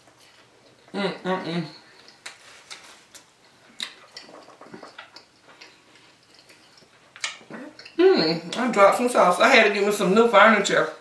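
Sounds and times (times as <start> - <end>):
wet chewing mouth clicks: 3.2 - 8.0.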